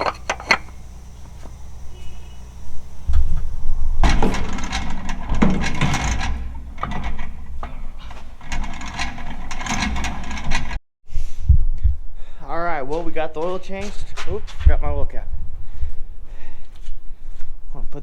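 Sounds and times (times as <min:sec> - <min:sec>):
knocks and clicks of tool work: 0:00.0 - 0:01.8, 0:02.5 - 0:10.8
low rumble: 0:00.0 - 0:10.8.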